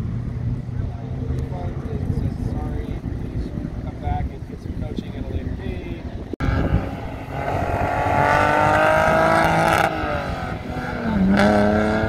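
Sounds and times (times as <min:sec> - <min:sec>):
car engine accelerating: 0:06.4 - 0:12.0.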